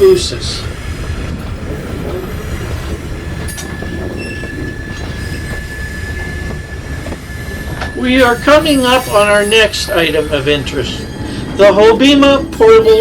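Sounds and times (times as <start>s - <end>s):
rail car rumbling on track: 0.0s - 13.0s
thin wheel squeal: 4.2s - 11.4s.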